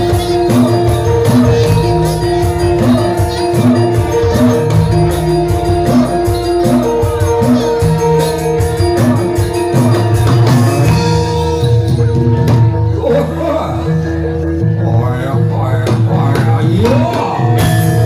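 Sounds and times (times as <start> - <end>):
drum strokes: 0.0 - 13.4
jingling percussion: 0.0 - 18.0
metallophones ringing: 0.0 - 18.0.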